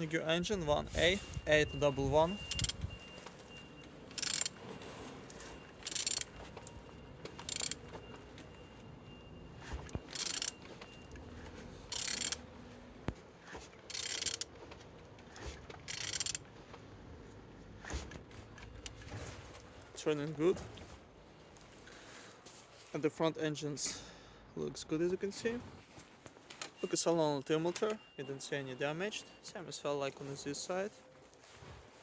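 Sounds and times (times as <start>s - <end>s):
wrench ratcheting: 2.5s - 2.8s, 4.1s - 4.6s, 5.8s - 6.3s, 7.4s - 7.8s, 10.1s - 10.6s, 11.9s - 12.4s, 13.9s - 14.5s, 15.9s - 16.4s.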